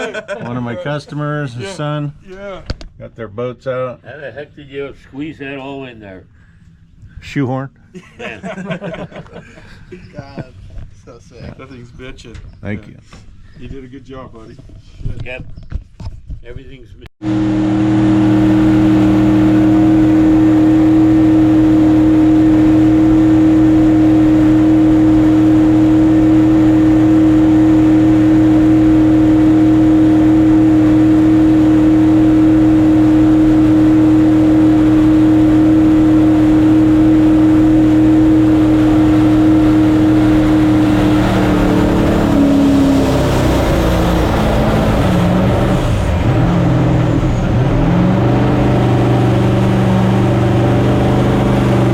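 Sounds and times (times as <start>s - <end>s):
jet boat engine running: 17.2s - 51.9s
rushing noise: 17.2s - 51.9s.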